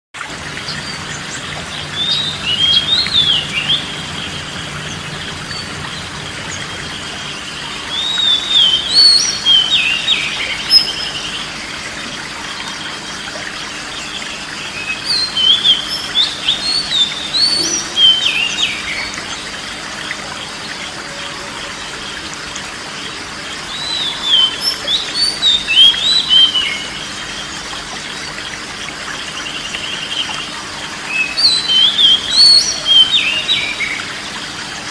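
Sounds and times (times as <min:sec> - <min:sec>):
songbird singing whistled phrases: 0:07.7 - 0:11.2, 0:14.8 - 0:19.0.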